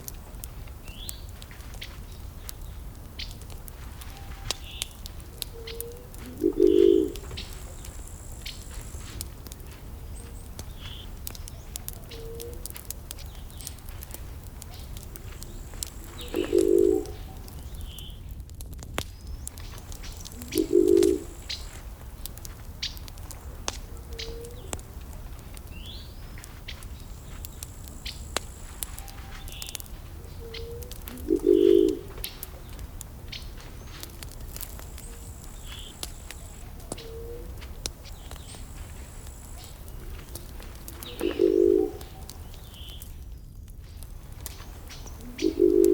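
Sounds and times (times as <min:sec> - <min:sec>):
faint birds chirping: 0:00.0 - 0:18.4, 0:19.0 - 0:45.9
burning wood crackling: 0:00.0 - 0:45.9
dove cooing: 0:05.5 - 0:09.1, 0:15.8 - 0:17.6, 0:20.3 - 0:21.8, 0:23.9 - 0:24.9, 0:28.9 - 0:32.6, 0:34.7 - 0:37.6, 0:38.3 - 0:42.4, 0:44.9 - 0:45.9.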